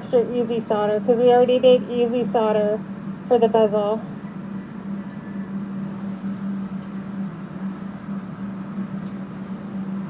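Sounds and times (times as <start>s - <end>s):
electric fans humming: 0.0s - 10.0s.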